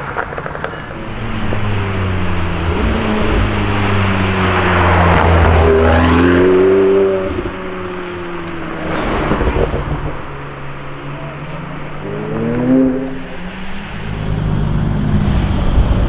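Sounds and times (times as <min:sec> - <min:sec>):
car engine accelerating past: 0:00.9 - 0:10.3.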